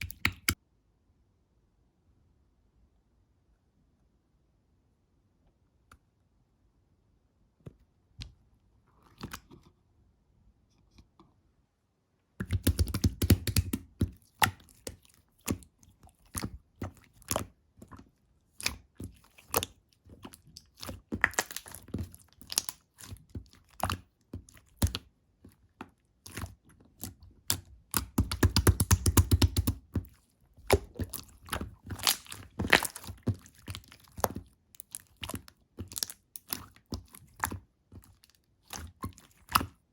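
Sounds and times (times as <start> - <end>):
slime squishing with sticky clicks: 0.0 - 0.6, 12.4 - 39.9.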